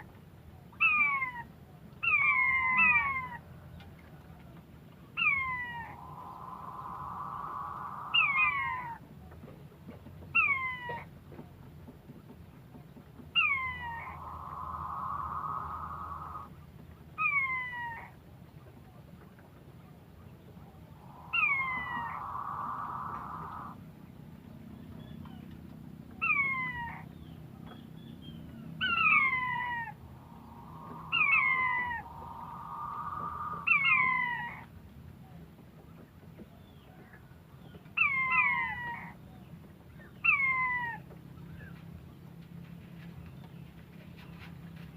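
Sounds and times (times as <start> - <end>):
animal calling: 0.8 - 3.4, 5.2 - 9.0, 13.4 - 16.5, 20.7 - 23.8, 28.8 - 34.7
steady high hum: 5.4 - 9.0, 13.7 - 16.6, 20.5 - 23.9, 29.1 - 34.6.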